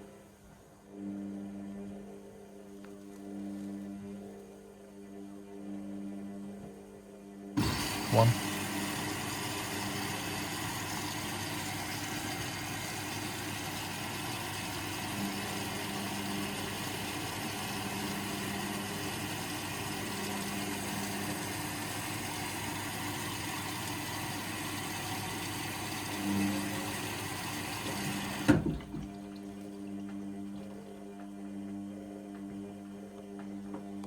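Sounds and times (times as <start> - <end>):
washing machine hum: 7.6 - 34.0.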